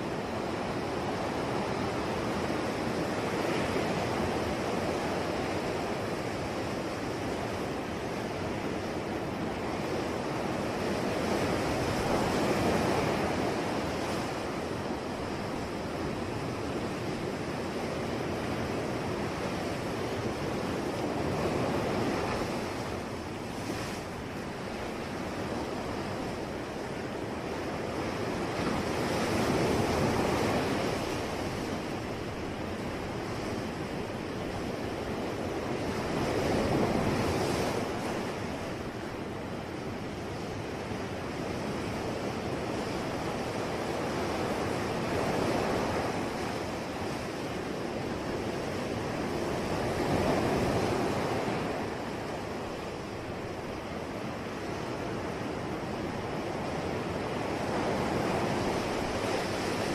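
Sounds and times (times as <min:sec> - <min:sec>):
ocean waves washing ashore: 0:00.0 - 0:59.9.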